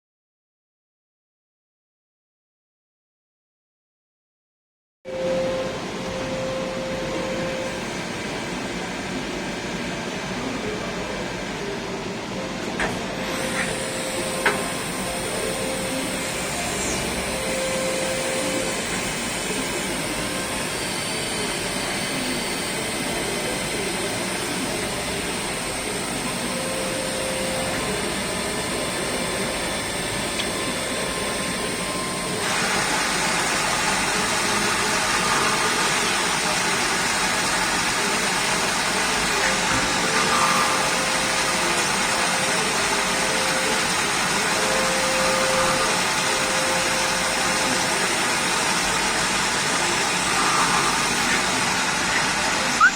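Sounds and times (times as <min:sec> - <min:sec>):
lathe running: 0:13.0 - 0:52.8.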